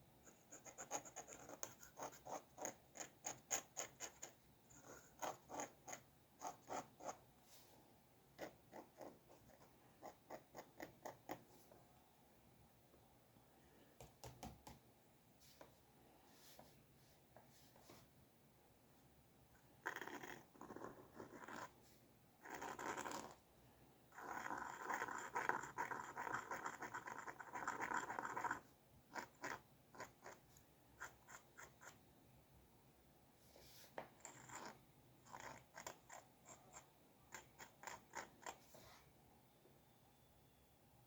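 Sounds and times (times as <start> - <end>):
pencil scratching on paper: 0.2 - 7.8, 8.4 - 11.8, 19.8 - 23.4, 24.2 - 32.0, 33.5 - 39.0.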